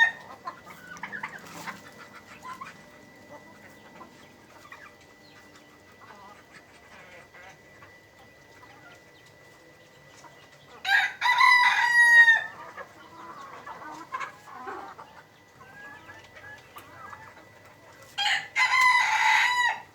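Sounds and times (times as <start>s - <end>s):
rooster crowing: 0.0s - 0.4s, 10.8s - 12.7s, 18.2s - 19.9s
chickens clucking: 0.0s - 19.9s.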